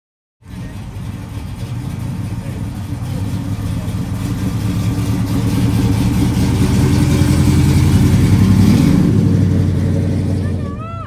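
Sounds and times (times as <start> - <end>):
car driving past: 0.5 - 10.8.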